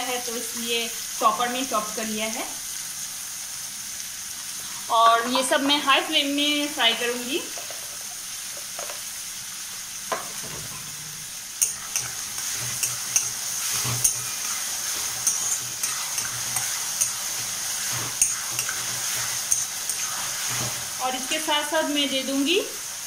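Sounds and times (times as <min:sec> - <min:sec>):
food sizzling in hot oil: 0:00.0 - 0:23.0
metal spatula scraping a pan: 0:10.3 - 0:21.0.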